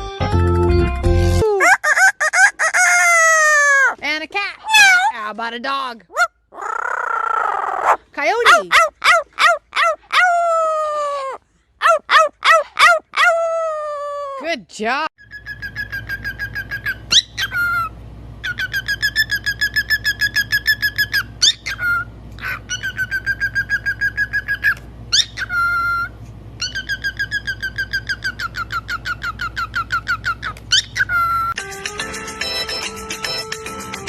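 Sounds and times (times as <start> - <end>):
parrot whistled trill: 15.2 - 22.0, 22.7 - 31.6.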